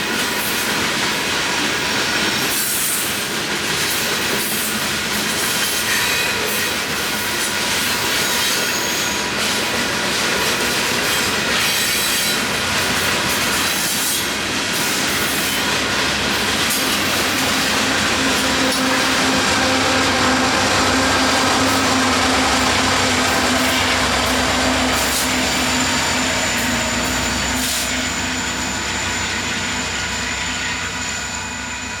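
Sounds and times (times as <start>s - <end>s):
train wheels rumbling on rail: 0.0s - 32.0s
high-pitched wheel squeal: 8.3s - 9.3s, 16.8s - 32.0s.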